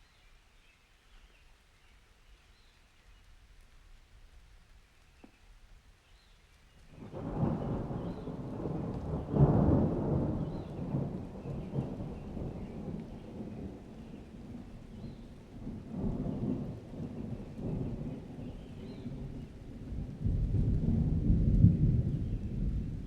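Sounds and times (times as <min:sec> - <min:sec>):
rain hissing: 0:06.2 - 0:23.0
thunder rumbling: 0:06.9 - 0:23.0.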